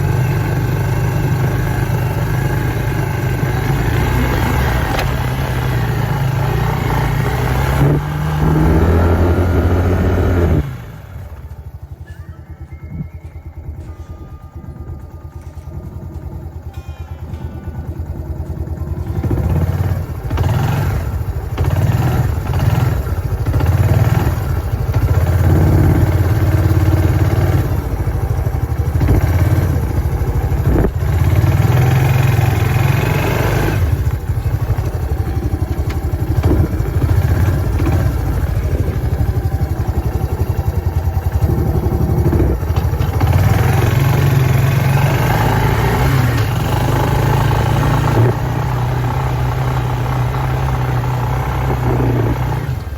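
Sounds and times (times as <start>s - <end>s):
off-road vehicle engine revving: 0.0s - 11.9s, 18.4s - 52.9s.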